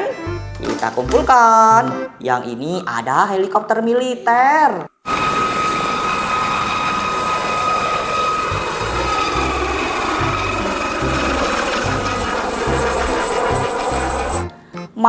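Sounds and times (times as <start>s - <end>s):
toy helicopter rotor whirring: 5.1s - 14.5s.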